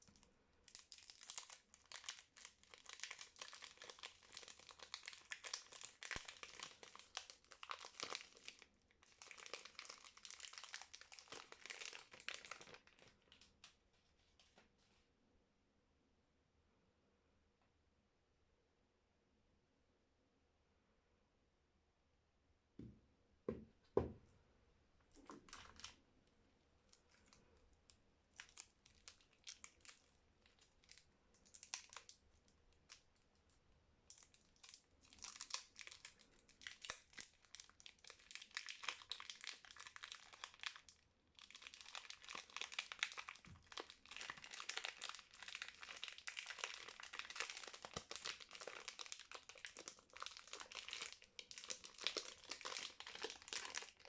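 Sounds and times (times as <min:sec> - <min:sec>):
wrapper crinkling and tearing: 0:00.1 - 0:13.8, 0:25.2 - 0:26.0, 0:26.9 - 0:33.2, 0:34.1 - 0:54.0.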